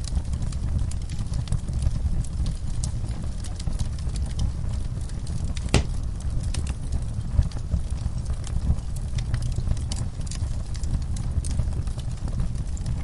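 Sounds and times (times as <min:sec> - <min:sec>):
wood fire crackling: 0:00.0 - 0:13.0
sharp pops of fire: 0:05.1 - 0:07.5.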